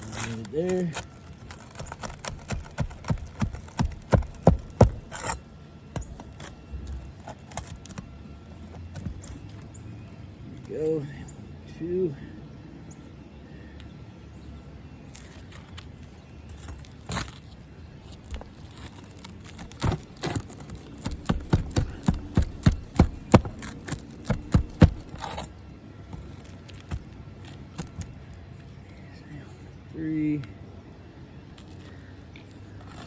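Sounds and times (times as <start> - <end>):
tool knocking on nail: 21.1 - 25.2.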